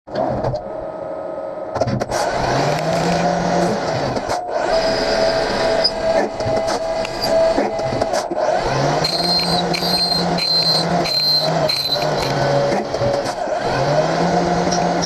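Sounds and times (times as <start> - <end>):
machine spindle whine: 0.7 - 15.0
metal cutting noise: 2.0 - 15.0
scattered clicks: 9.0 - 13.4.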